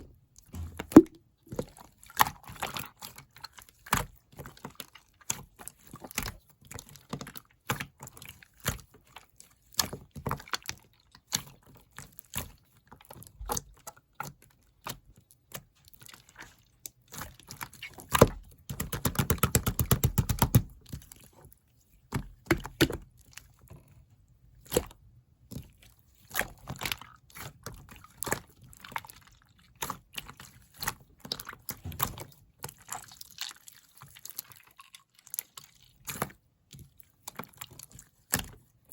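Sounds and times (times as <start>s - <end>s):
slime squeezed by hand: 0.9s - 1.2s.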